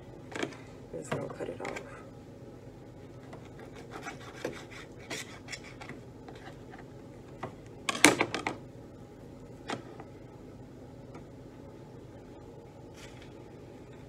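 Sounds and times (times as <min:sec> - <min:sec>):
knife scraping cutting board: 0:03.4 - 0:06.6.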